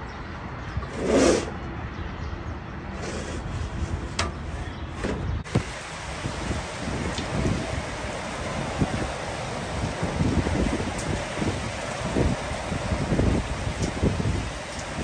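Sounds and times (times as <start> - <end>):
wind: 0.0 - 15.0
rain: 5.4 - 15.0.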